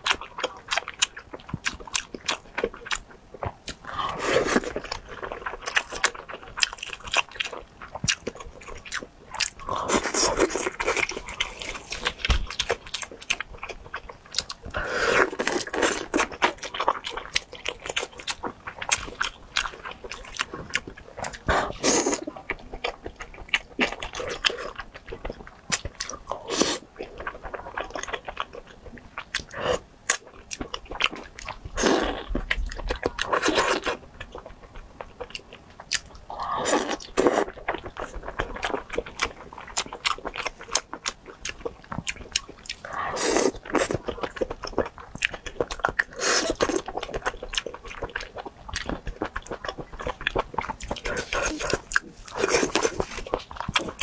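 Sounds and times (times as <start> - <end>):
chewing and biting food: 0.0 - 54.0.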